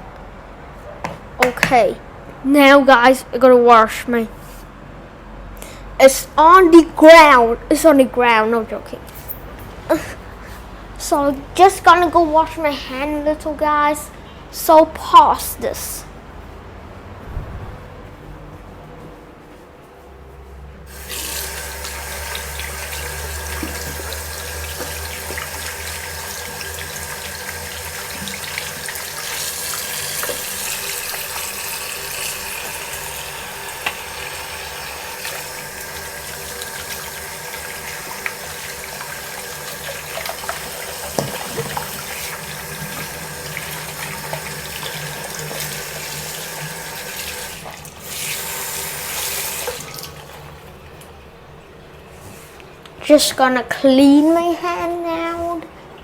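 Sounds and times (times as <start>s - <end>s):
tap running into sink: 21.1s - 31.6s, 37.6s - 47.5s
small knocks and splashes: 39.9s - 42.2s.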